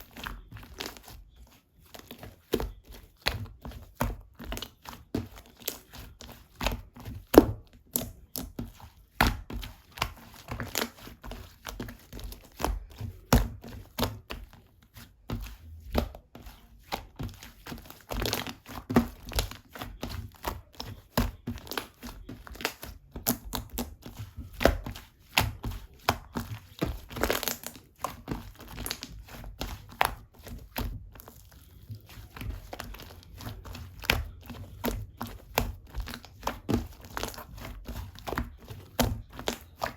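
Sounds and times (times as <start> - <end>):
slime squished by hand: 15.3 - 39.9.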